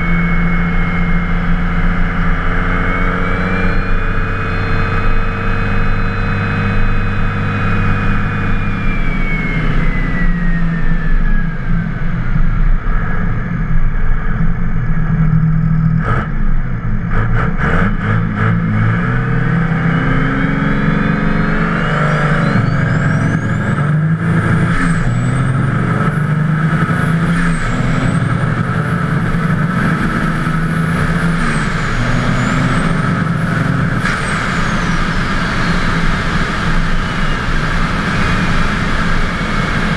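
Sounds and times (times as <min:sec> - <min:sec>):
diesel engine pulling hard: 0:00.0 - 0:39.9
turbo whistle: 0:02.7 - 0:11.7, 0:19.9 - 0:25.6, 0:31.2 - 0:39.9.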